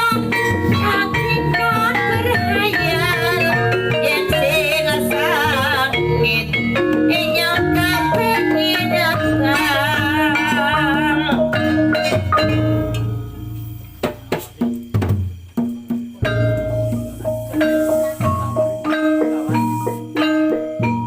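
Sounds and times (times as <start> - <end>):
pitched percussion notes: 0.0 - 21.0
wavering vibrato melody: 0.0 - 21.0
sharp drum strokes: 9.2 - 21.0.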